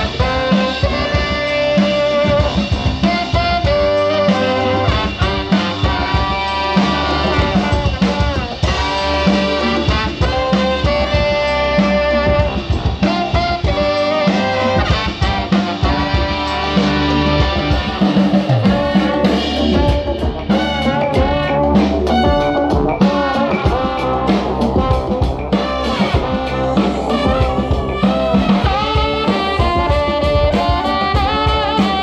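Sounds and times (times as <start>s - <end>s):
brass band playing: 0.0s - 32.0s
drum hits: 2.2s - 32.0s.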